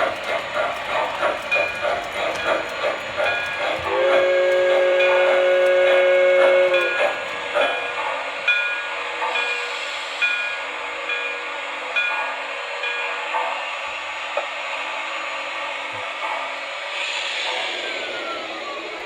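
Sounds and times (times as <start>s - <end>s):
model train wheels clicking: 0.0s - 8.3s
train whistle chord: 3.9s - 7.0s.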